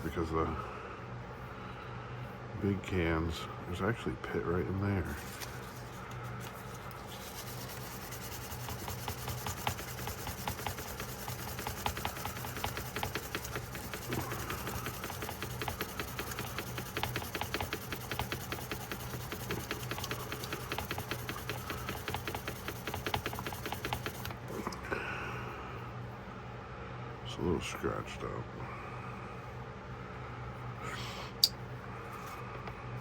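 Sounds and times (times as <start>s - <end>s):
rubbing and scrubbing a knife: 5.1s - 24.1s.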